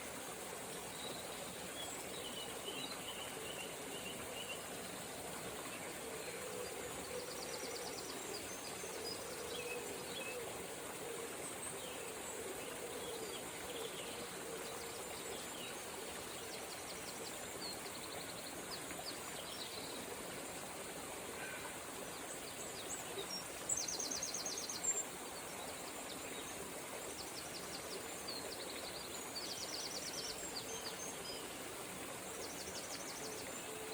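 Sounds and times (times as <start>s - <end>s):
river water running: 0.0s - 33.9s.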